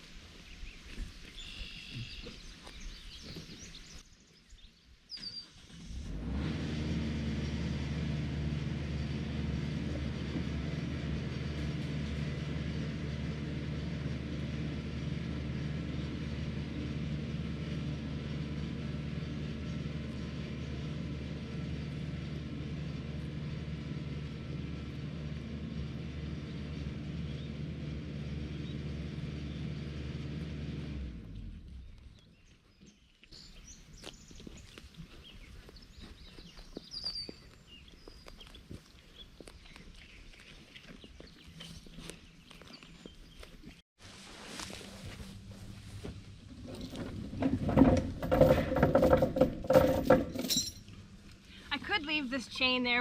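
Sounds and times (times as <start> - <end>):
engine running steadily: 5.6 - 32.5, 38.0 - 53.0.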